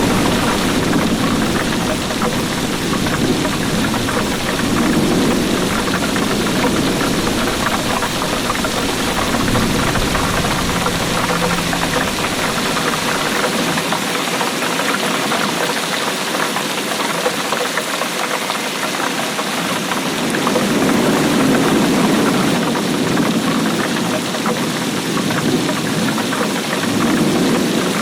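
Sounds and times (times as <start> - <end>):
low rumble: 0.0 - 13.8
heavy rain: 0.0 - 28.0.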